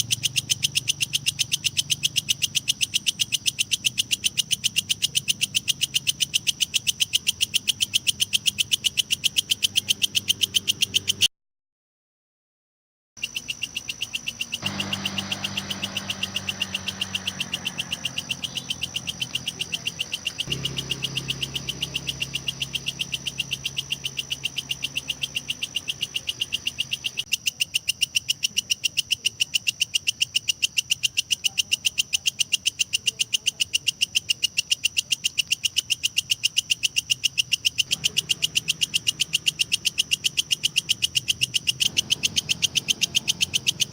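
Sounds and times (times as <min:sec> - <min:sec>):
katydid chirping: 0:00.0 - 0:11.3, 0:13.2 - 0:43.9
faint low hum: 0:14.7 - 0:27.2.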